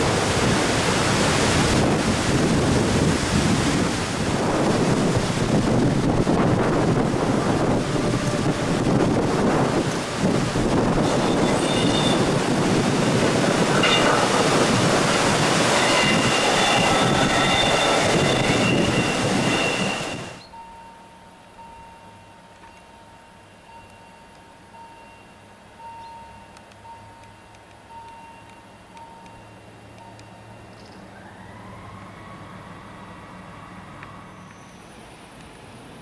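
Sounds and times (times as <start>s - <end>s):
train rolling past: 0.0s - 36.0s
train wheel squeal: 11.0s - 12.3s, 13.0s - 20.7s, 34.1s - 35.1s
level crossing signal beeping: 15.1s - 30.8s.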